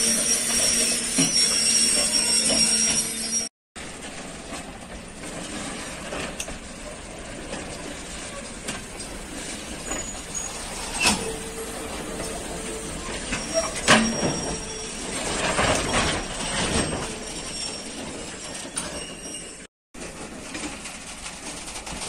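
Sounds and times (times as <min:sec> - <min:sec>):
thin wheel squeal: 0:00.0 - 0:03.5, 0:09.8 - 0:19.7
rumble of wheels on rail: 0:02.0 - 0:22.0.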